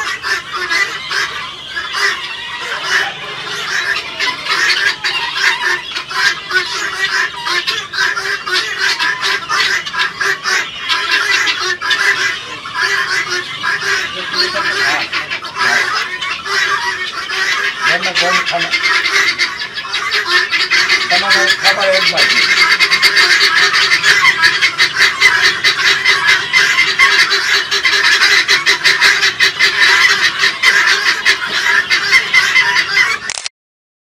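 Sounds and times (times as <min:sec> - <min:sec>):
guineafowl calling: 0:00.0 - 0:33.4.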